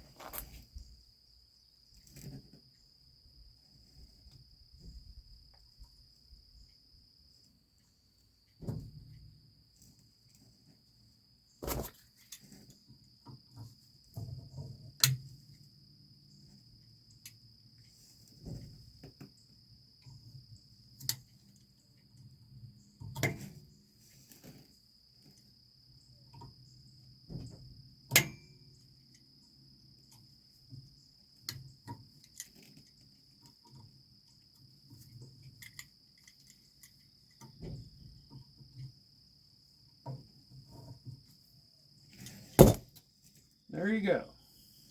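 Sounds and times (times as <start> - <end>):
crickets chirring: 0.0 - 44.9.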